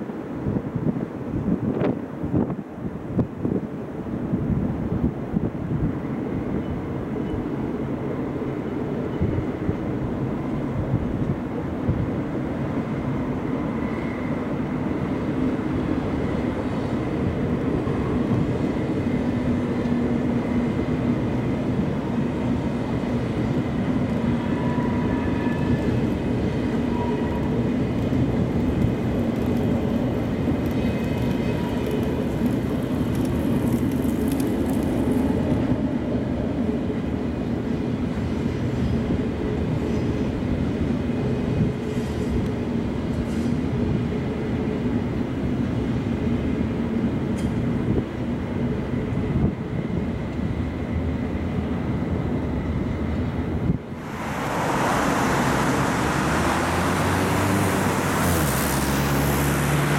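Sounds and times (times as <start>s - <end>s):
train wheels rumbling on rails: 0.0s - 59.9s
light high hiss: 54.0s - 59.9s.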